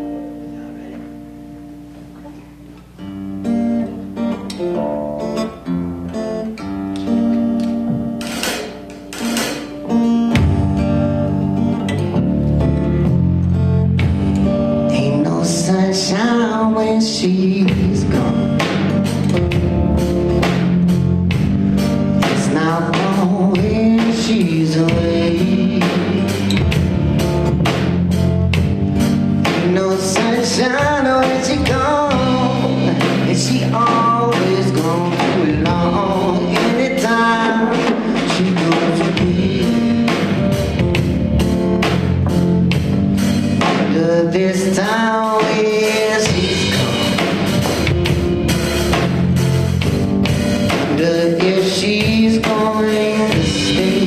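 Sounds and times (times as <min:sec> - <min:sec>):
live band playing: 0:00.0 - 0:54.0
sliding lead melody: 0:00.0 - 0:54.0.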